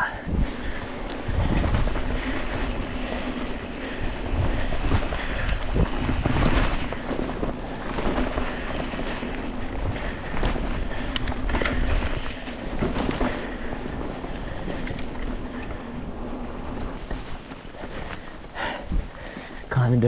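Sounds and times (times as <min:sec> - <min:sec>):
bike tyres rolling on dirt: 0:00.0 - 0:20.0
steady low rumble: 0:00.0 - 0:20.0
wind buffeting microphone: 0:00.0 - 0:20.0.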